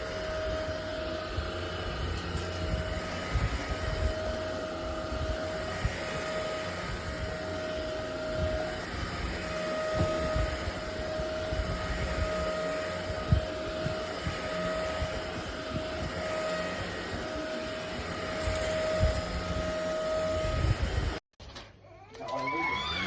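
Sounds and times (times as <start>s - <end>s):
vacuum cleaner running: 0.0s - 21.2s.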